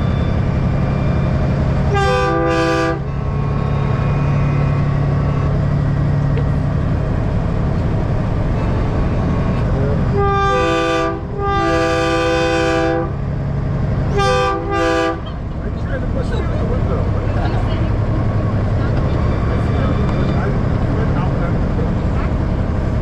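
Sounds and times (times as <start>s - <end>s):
truck train horn blasts: 0.0s - 5.5s, 8.6s - 13.3s, 14.1s - 15.5s
diesel truck engine humming: 0.0s - 23.0s.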